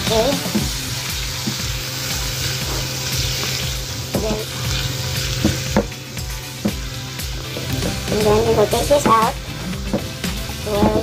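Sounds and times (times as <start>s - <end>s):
prawns sizzling in hot oil: 0.0s - 11.0s
spatula knocking pan: 5.4s - 6.0s.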